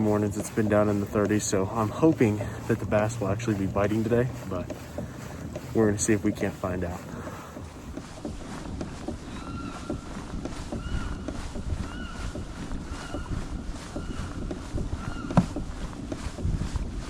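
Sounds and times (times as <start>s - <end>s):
water and hull rumble: 0.0s - 17.0s
knocks on kayak hull: 13.9s - 16.6s.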